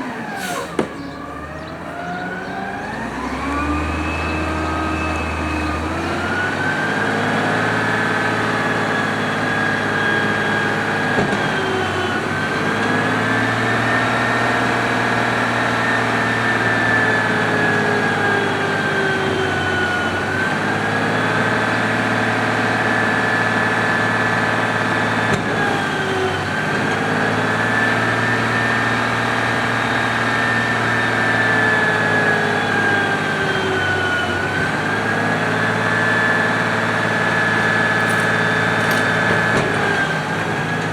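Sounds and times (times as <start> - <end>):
hydraulic whine: 0.0 - 14.8, 33.4 - 40.9
garbage truck engine hum: 0.0 - 40.9.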